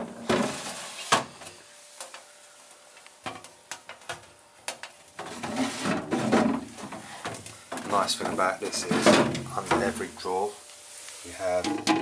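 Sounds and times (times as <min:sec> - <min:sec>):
freezer drawers knocking: 0:08.0 - 0:10.0.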